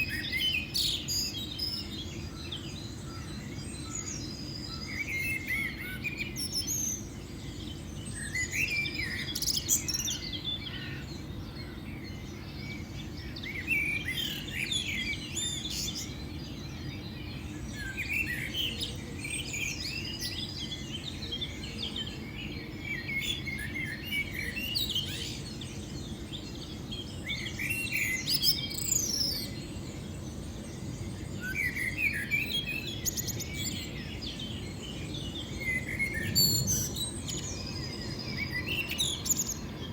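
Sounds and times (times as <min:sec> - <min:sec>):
wild birds chirping: 0:00.0 - 0:39.9.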